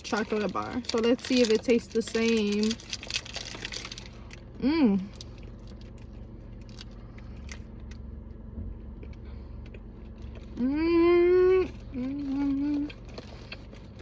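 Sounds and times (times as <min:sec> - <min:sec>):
woman humming mmm: 0:04.6 - 0:05.1, 0:10.6 - 0:13.0.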